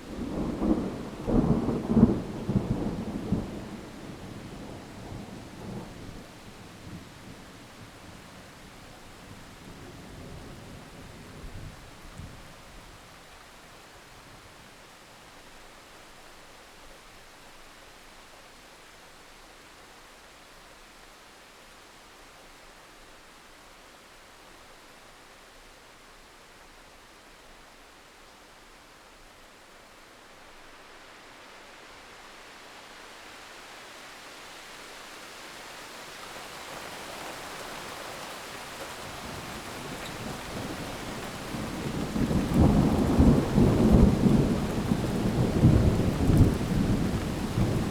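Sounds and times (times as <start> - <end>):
heavy rain falling: 0.0 - 14.4, 30.6 - 47.9
thunder rumbling: 39.3 - 47.9.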